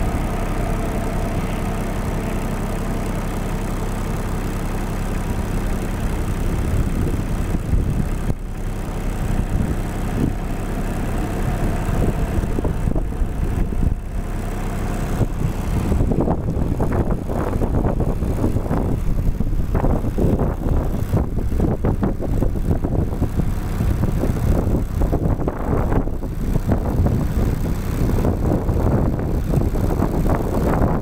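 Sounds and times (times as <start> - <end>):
engine idling: 0.0 - 31.0
wind buffeting microphone: 6.0 - 31.0.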